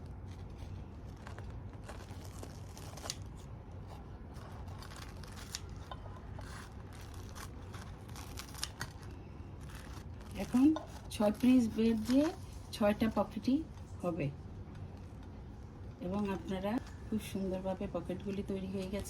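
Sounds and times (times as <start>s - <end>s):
steady low hum: 0.0s - 19.0s
blade cutting crisp bread: 0.4s - 12.4s.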